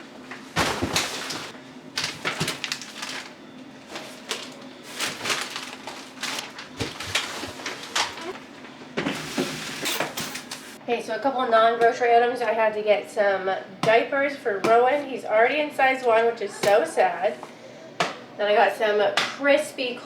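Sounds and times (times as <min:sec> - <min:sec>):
plastic bags rustling and crinkling: 0:00.2 - 0:08.5
items set down knocking: 0:00.3 - 0:03.3, 0:03.9 - 0:08.2.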